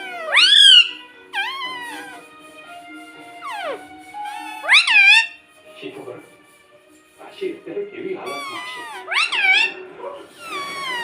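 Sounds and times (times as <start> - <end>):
parrot calling: 0.0 - 5.6, 8.2 - 11.0.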